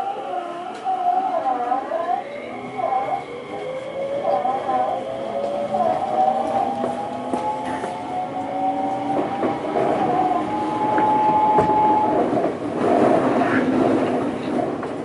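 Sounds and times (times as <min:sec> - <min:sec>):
wheel and rail rumble: 0:00.0 - 0:15.0
electric train motor whine: 0:01.7 - 0:12.1.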